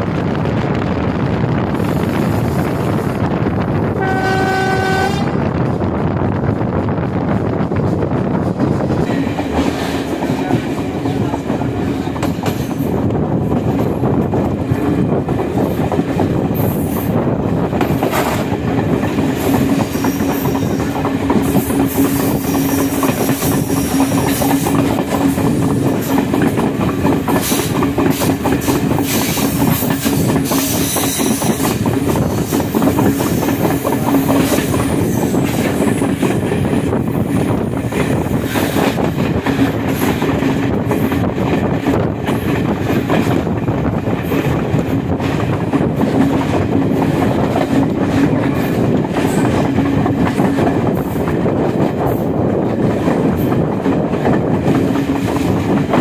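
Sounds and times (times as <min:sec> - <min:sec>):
train wheels clattering on rails: 0:00.0 - 0:56.0.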